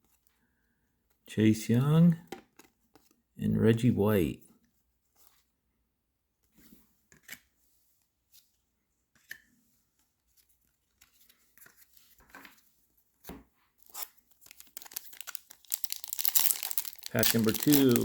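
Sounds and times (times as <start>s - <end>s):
foil wrapper crinkling: 13.8s - 18.0s
trading cards rustling: 13.8s - 18.0s.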